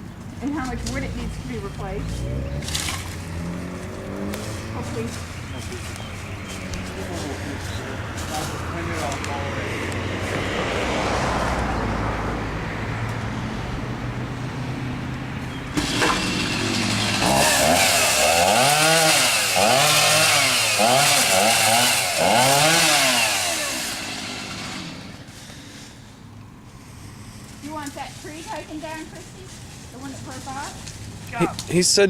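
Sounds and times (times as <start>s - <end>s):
chainsaw revving: 1.0s - 6.1s, 15.7s - 25.9s.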